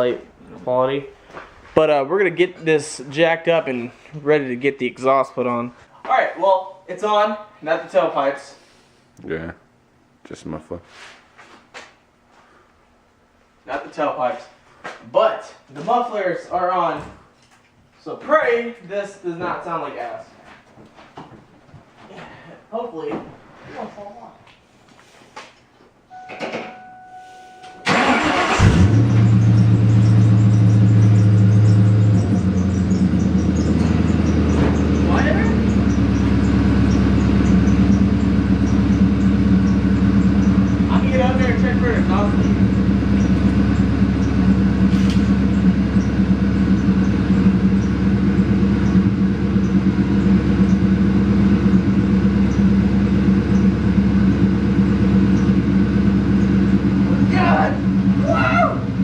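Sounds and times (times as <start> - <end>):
engine starting and idling: 27.8 - 59.0
starter motor whine: 27.8 - 59.0.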